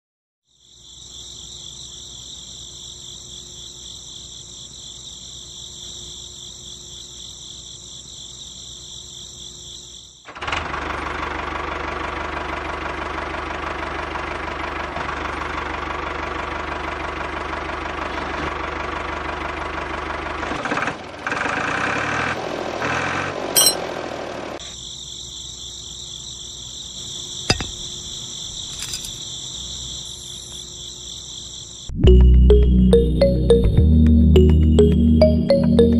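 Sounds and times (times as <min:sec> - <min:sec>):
crickets chirring: 0:00.5 - 0:10.3, 0:24.6 - 0:32.0.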